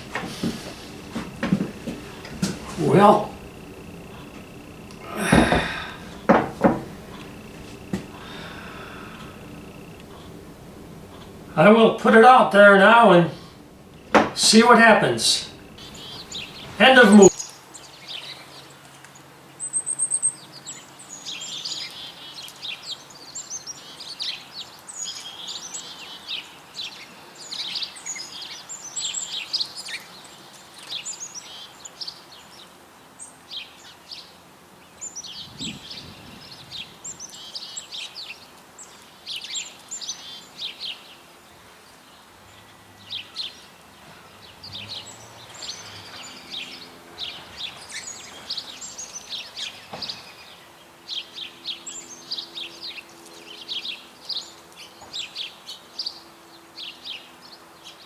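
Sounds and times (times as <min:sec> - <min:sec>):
small birds chirping: 0:00.0 - 0:18.7, 0:35.0 - 0:58.0.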